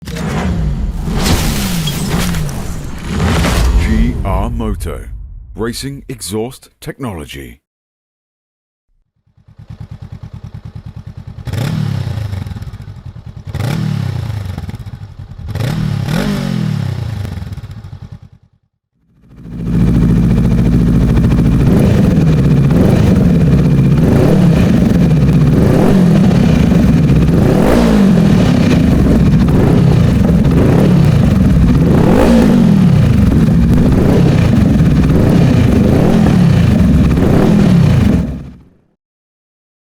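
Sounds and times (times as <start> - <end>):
motorcycle engine idling: 9.2 - 16.1, 19.2 - 27.6
motorcycle engine revving: 9.3 - 18.5, 19.2 - 38.7.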